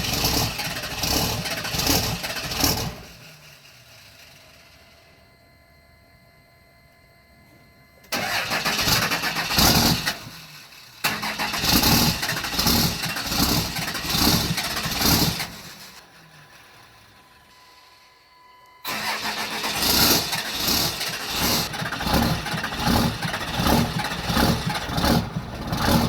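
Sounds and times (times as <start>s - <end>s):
diesel engine cranking: 0.0s - 4.3s, 8.1s - 17.1s, 18.8s - 26.0s.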